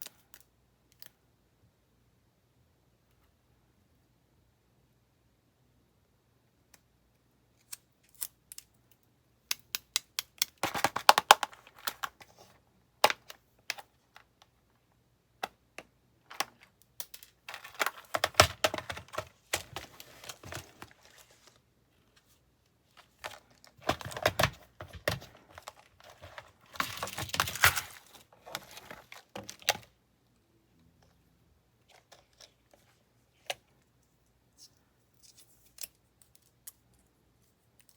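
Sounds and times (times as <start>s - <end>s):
plastic packaging clicks and taps: 9.5s - 12.3s, 15.4s - 20.9s, 23.2s - 27.8s.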